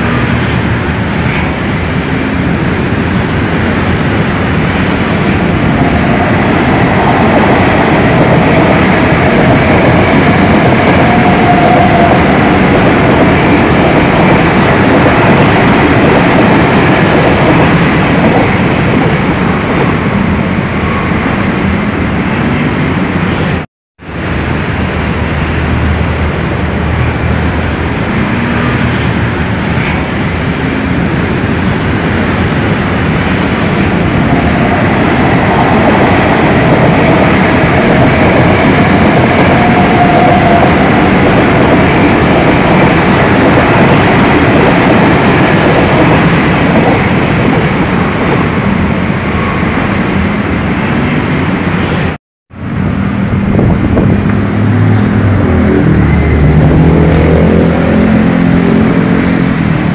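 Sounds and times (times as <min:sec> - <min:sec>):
faint train whine: 0:00.0 - 0:14.8, 0:18.5 - 0:46.2
electric trains rumbling: 0:00.0 - 0:59.9.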